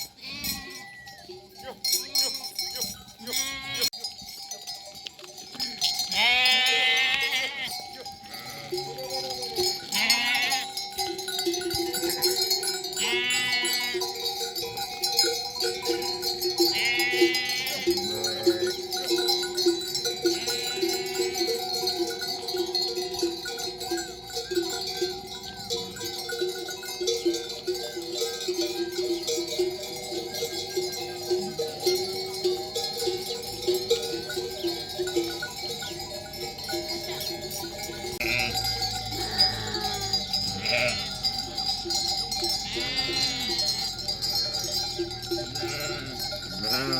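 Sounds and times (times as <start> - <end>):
sheep and lambs bleating: 0.0 - 2.5, 3.2 - 4.0, 6.0 - 9.0, 9.8 - 10.8, 13.0 - 14.1, 16.7 - 18.8, 20.2 - 21.6, 38.1 - 41.4, 42.5 - 44.5, 45.5 - 46.9
sheep bells clanking: 0.0 - 46.9.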